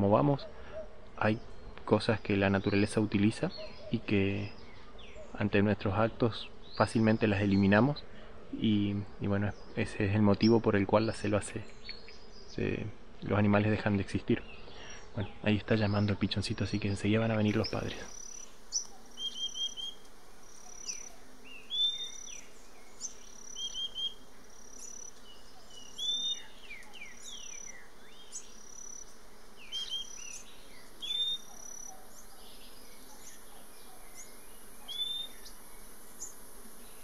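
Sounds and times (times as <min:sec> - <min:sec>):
high insect hiss: 0:15.9 - 0:37.0
fledgling bird begging calls: 0:17.5 - 0:35.6.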